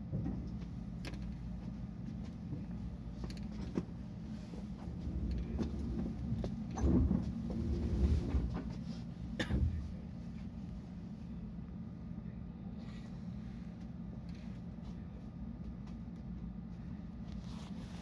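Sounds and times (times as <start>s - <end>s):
train equipment hum: 0.0s - 18.0s
low rumble and knocking: 4.6s - 10.5s.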